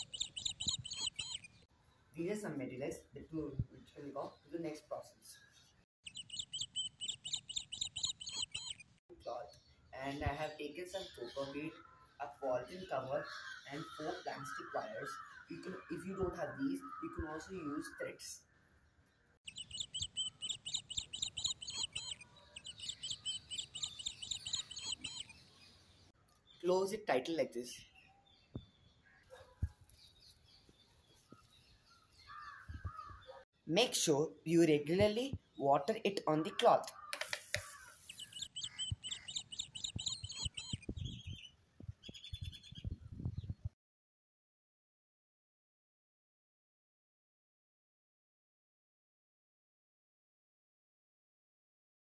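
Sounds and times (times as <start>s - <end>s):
bird chirping sharply: 0.0s - 1.7s, 6.0s - 9.0s, 19.4s - 25.8s, 36.5s - 42.9s
songbird chirps and trills: 0.0s - 43.8s.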